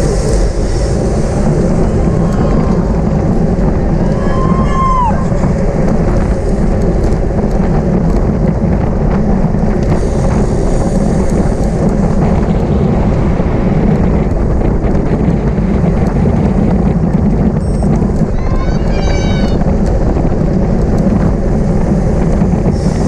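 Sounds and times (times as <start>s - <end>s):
wind rumbling over microphone: 0.0s - 23.0s.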